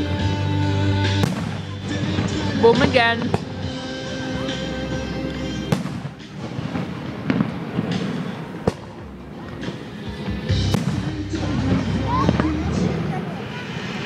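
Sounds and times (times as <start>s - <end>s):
music: 0.0s - 14.0s
fireworks bangs: 1.1s - 3.7s, 5.6s - 14.0s.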